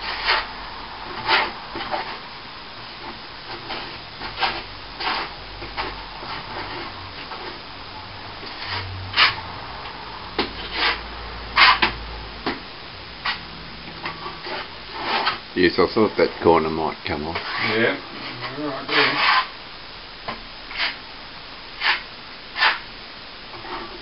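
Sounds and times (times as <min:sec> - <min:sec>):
hand tool scraping plaster: 0:00.0 - 0:00.5, 0:03.1 - 0:07.6, 0:10.6 - 0:11.0, 0:11.6 - 0:11.9, 0:14.2 - 0:15.4, 0:17.4 - 0:19.5, 0:20.7 - 0:21.0, 0:21.8 - 0:22.0, 0:22.6 - 0:22.8.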